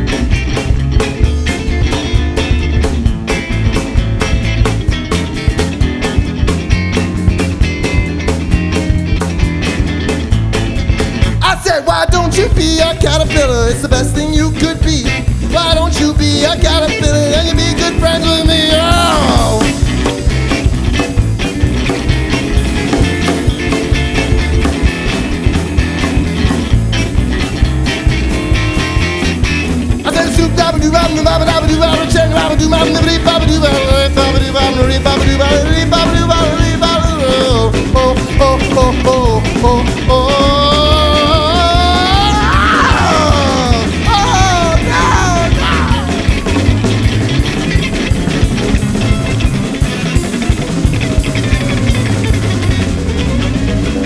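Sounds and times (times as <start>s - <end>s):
bass guitar: 0.0s - 54.0s
drums playing quick beat: 0.0s - 54.0s
electric guitar: 0.0s - 54.0s
wordless sung wails: 15.5s - 19.9s, 30.1s - 46.9s.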